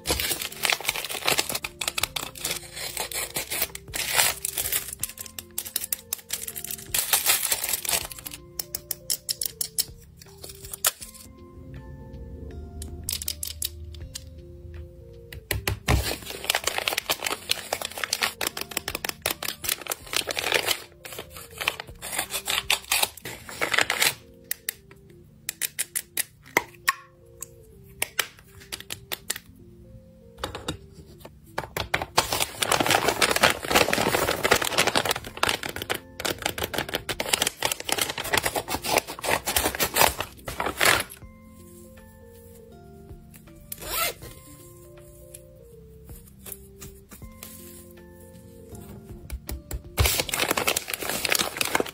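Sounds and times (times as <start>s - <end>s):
packaging crinkling and rustling: 0.0s - 11.3s, 15.9s - 24.3s, 31.8s - 41.2s, 50.0s - 51.9s
soft background music: 0.0s - 51.9s.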